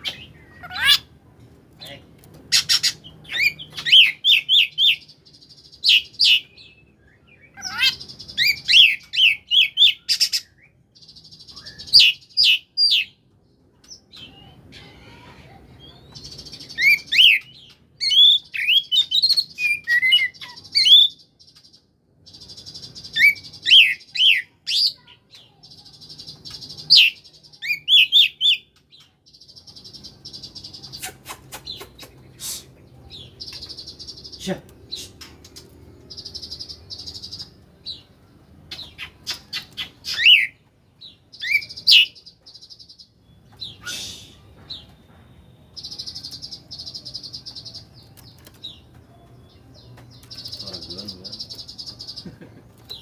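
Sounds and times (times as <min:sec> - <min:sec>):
bird singing whistled phrases: 0:11.4 - 0:13.1, 0:43.7 - 0:44.7.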